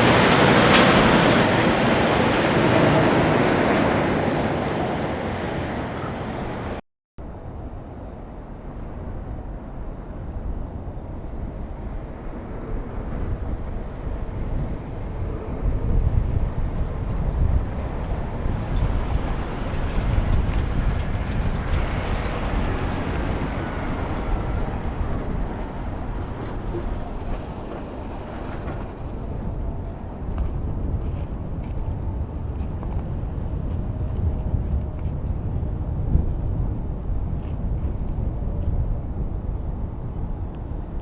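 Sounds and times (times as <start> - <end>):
truck driving past: 0.0 - 6.8, 13.2 - 34.8.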